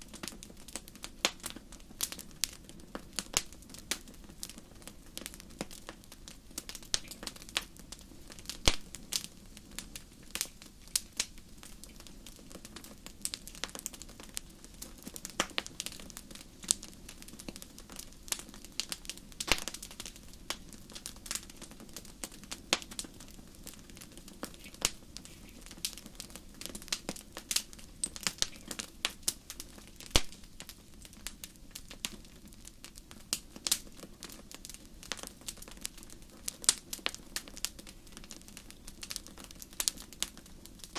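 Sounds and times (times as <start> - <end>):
low rumble of flames: 0.0 - 40.9
wood fire crackling: 0.0 - 40.9.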